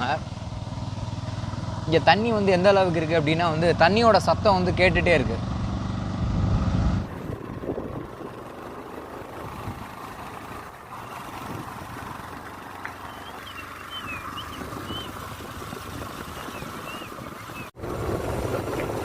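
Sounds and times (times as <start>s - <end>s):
small bird chirping: 13.0s - 15.2s, 16.2s - 17.7s.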